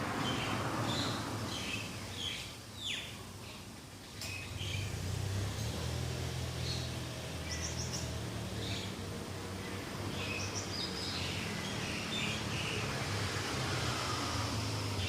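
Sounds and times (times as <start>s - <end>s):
birds chirping: 0.2s - 5.0s, 6.6s - 13.6s.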